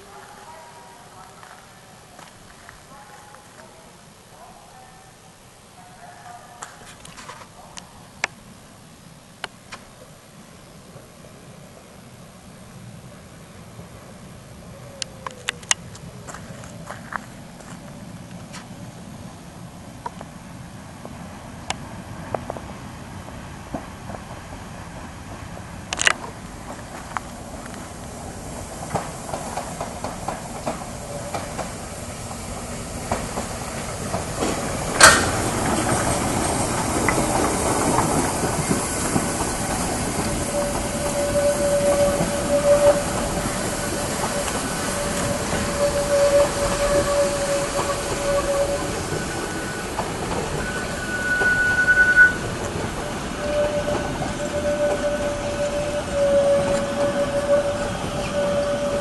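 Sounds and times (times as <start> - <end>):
steam train approaching: 0.0 - 59.0
wheels clicking: 13.7 - 19.1, 23.7 - 59.0
sharp crack: 34.4 - 35.9
thin metallic squeal: 39.8 - 59.0.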